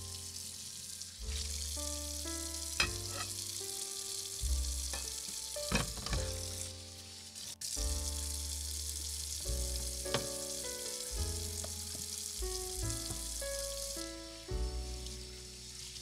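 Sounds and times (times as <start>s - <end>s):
food sizzling in saucepan: 0.0s - 16.0s
light stirring: 2.8s - 3.5s
background music with bass line: 4.4s - 6.8s, 7.8s - 15.6s.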